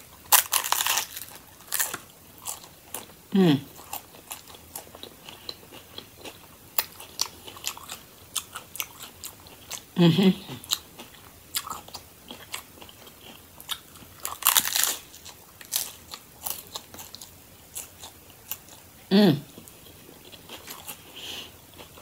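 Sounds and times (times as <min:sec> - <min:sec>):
crunching and chewing taco: 0:00.0 - 0:22.0
person humming mm: 0:03.3 - 0:03.7, 0:10.0 - 0:10.6, 0:19.1 - 0:19.5.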